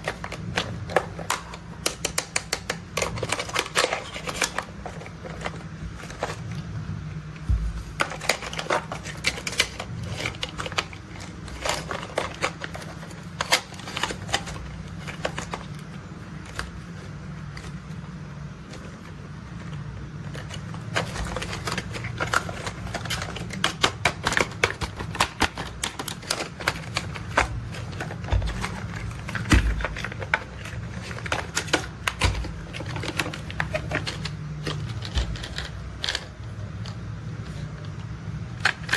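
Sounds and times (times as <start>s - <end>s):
plastic toy parts clattering: 0.0s - 6.5s, 7.5s - 17.9s, 18.7s - 37.9s.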